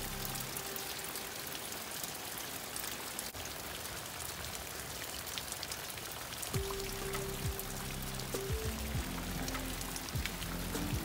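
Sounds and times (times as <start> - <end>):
heavy rain on ground and leaves: 0.0 - 11.0
raindrops ticking close by: 0.0 - 11.0.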